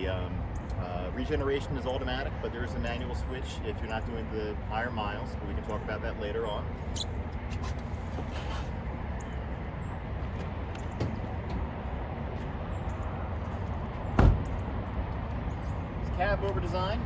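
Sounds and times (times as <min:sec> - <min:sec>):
loud thump: 0:14.2 - 0:14.5.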